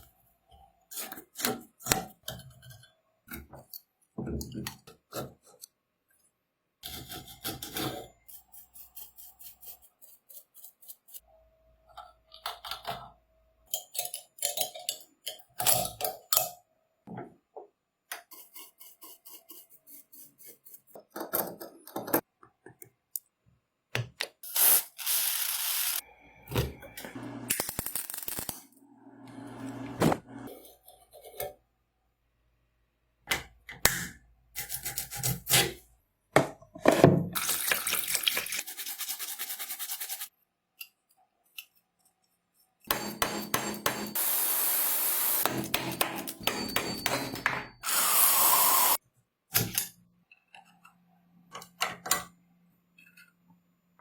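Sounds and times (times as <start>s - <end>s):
tool scraping and rubbing metal: 6.8s - 11.3s.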